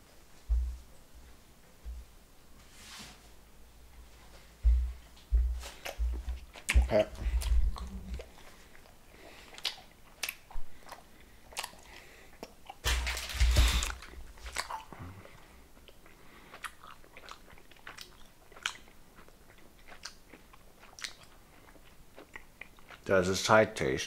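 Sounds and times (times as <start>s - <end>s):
wet mouth chewing clicks: 5.8s - 12.8s, 13.8s - 15.0s, 15.8s - 23.0s.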